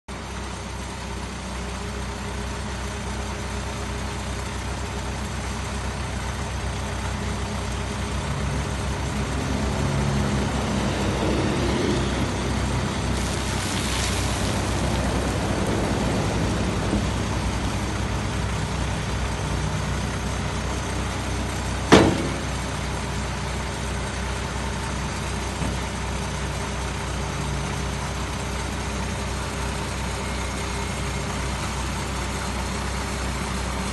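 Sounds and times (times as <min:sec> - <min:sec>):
backhoe diesel engine running: 0:00.1 - 0:33.9
sharp knock: 0:21.9 - 0:22.6.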